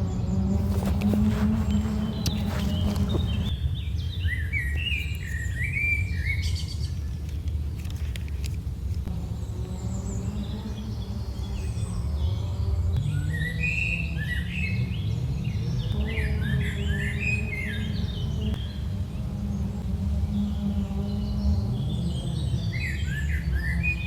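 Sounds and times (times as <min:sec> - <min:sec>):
steady low rumble: 0:00.0 - 0:11.0
small birds chirping: 0:00.0 - 0:24.0.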